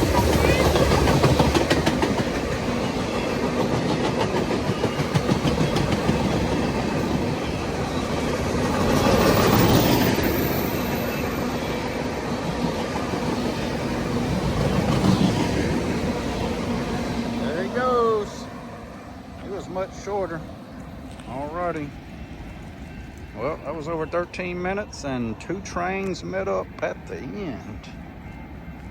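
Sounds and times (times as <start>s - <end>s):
wheels clicking over rail joints: 0.0s - 18.4s
freight train rumbling past: 0.0s - 28.9s.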